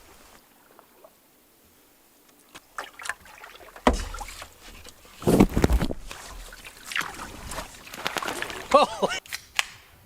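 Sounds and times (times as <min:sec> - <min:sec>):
paddle knocking canoe hull: 0:02.8 - 0:08.8.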